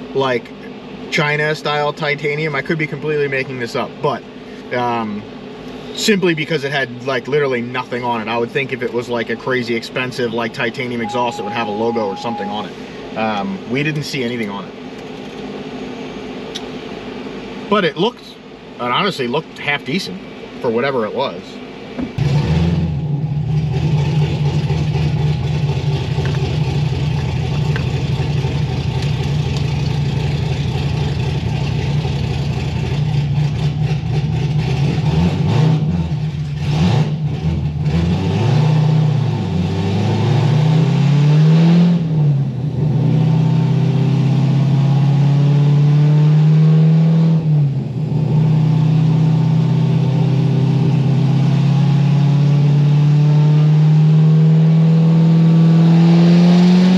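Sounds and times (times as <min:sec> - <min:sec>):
car engine revving on a dyno: 0:22.2 - 0:26.8, 0:33.0 - 0:56.9.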